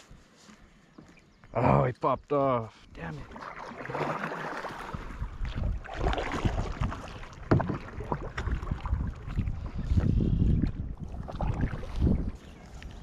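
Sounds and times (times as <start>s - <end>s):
wind buffeting microphone: 4.8s - 13.0s
knocks and handling on boat: 4.9s - 10.8s.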